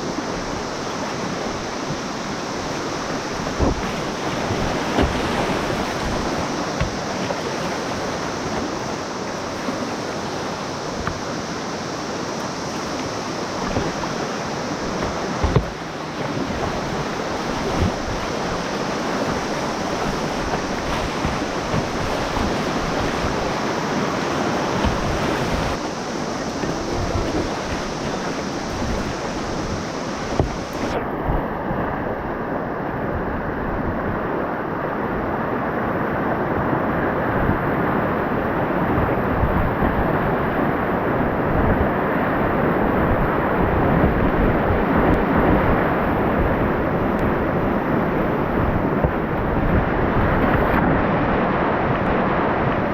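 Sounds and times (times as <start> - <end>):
river water rushing over rapids: 0.0 - 52.9
short knocks: 14.8 - 15.8.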